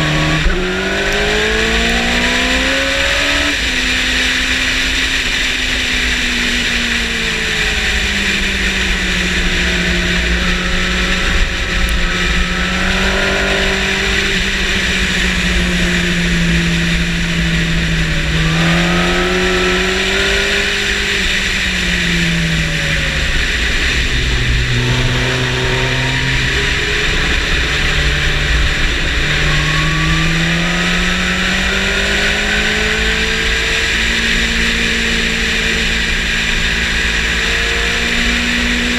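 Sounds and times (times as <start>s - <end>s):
motorcycle engine accelerating: 0.0s - 38.9s
loud rushing noise: 7.0s - 37.8s.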